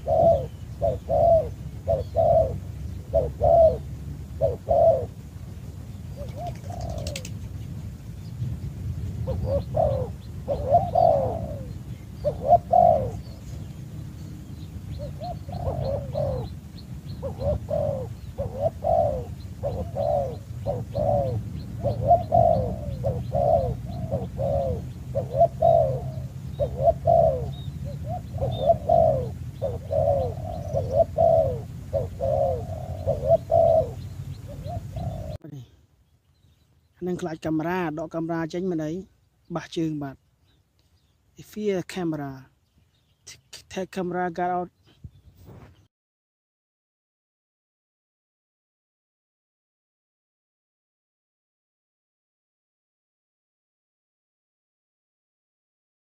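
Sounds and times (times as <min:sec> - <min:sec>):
dove cooing: 0:00.0 - 0:07.6, 0:09.1 - 0:35.8
small birds chirping: 0:00.0 - 0:45.9.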